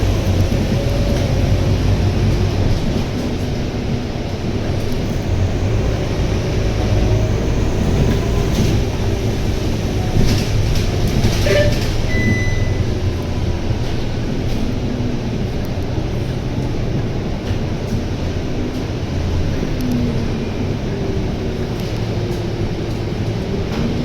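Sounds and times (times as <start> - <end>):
bus diesel engine drone: 0.0 - 24.0
road noise: 0.0 - 24.0
high beep: 12.1 - 12.9.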